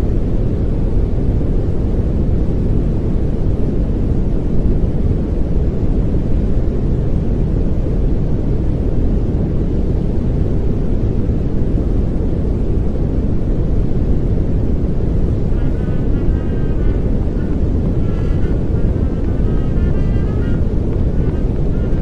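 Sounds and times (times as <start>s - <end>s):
pink noise hiss: 0.0s - 22.0s.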